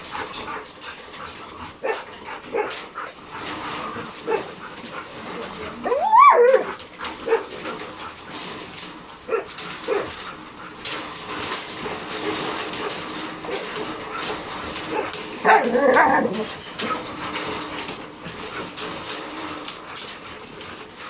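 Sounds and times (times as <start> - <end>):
dogs yipping and whimpering: 0.4 - 7.9, 9.3 - 10.6, 12.6 - 17.7.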